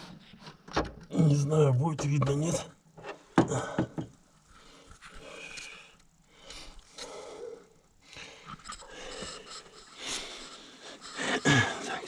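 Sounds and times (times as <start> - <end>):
man breathing: 3.4 - 12.0.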